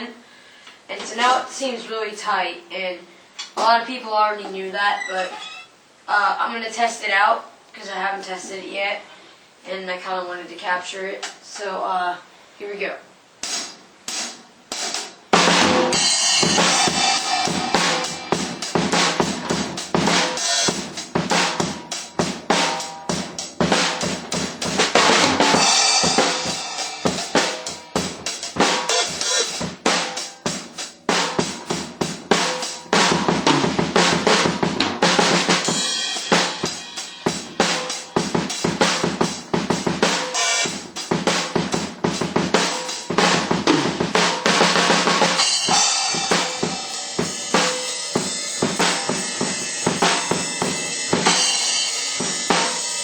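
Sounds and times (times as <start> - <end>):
drum kit playing: 13.2 - 53.0
damped bass drum thumps: 15.4 - 30.0, 31.4 - 35.8, 40.8 - 45.2.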